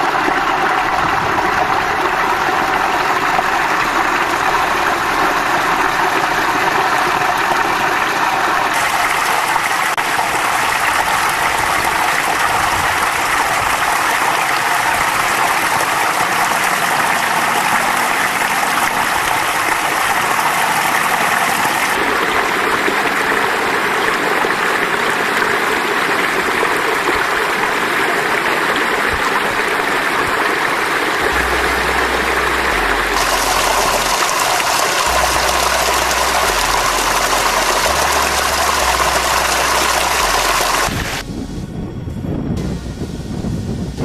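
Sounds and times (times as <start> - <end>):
running water: 0.0 - 41.3
low rumble: 31.2 - 44.0.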